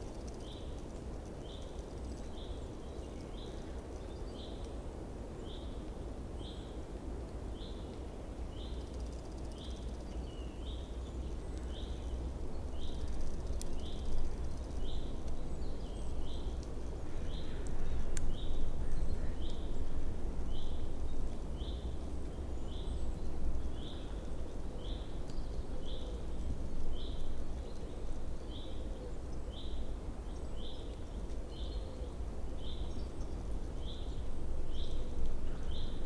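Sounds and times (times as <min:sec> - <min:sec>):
small bird chirping: 0:08.5 - 0:19.8
low outdoor rumble: 0:10.2 - 0:36.0.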